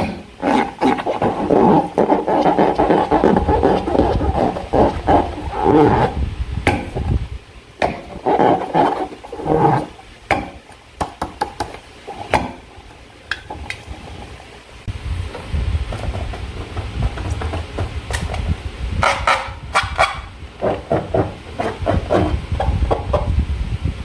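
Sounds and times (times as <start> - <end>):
slime squelching: 0.0 - 6.2, 7.8 - 10.8.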